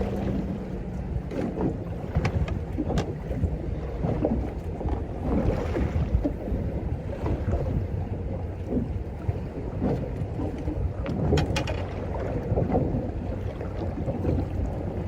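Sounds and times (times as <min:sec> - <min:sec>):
water against boat hull: 0:00.0 - 0:15.0
wind buffeting microphone: 0:00.0 - 0:15.0.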